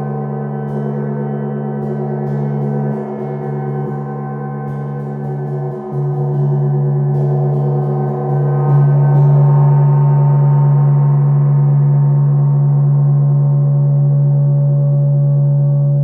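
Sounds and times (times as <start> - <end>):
gong struck and ringing: 0.0 - 12.4.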